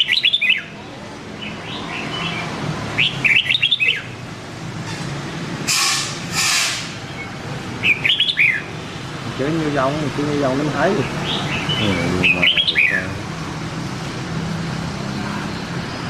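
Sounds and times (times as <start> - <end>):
bird singing warbling phrases: 0.0 - 0.8, 1.4 - 4.2, 7.1 - 13.3.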